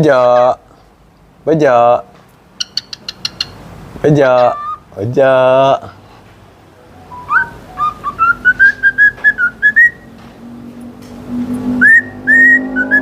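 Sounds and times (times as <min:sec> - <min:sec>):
bird whistling: 0:02.6 - 0:03.6, 0:04.4 - 0:04.9, 0:07.1 - 0:10.1, 0:11.8 - 0:13.0.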